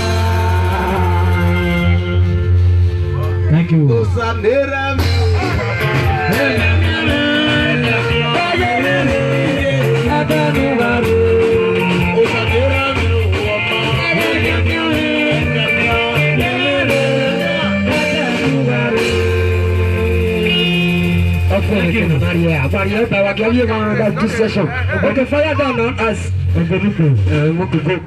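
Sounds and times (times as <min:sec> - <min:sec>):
person singing: 0:00.0 - 0:03.4, 0:04.4 - 0:21.2
live rock band playing: 0:00.0 - 0:28.0.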